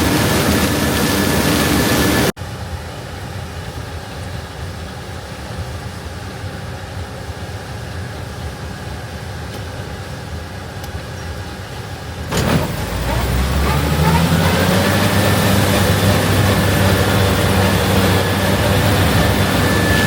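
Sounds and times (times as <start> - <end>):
diesel machinery engine droning: 11.4 - 20.0.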